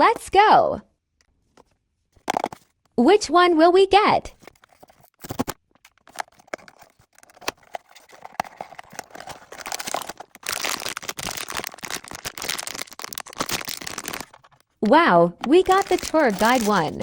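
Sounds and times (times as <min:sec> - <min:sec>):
packaging clicks and knocks: 0:01.6 - 0:02.8, 0:04.4 - 0:17.0
wrapping crinkling and rustling: 0:04.4 - 0:14.8, 0:15.4 - 0:17.0.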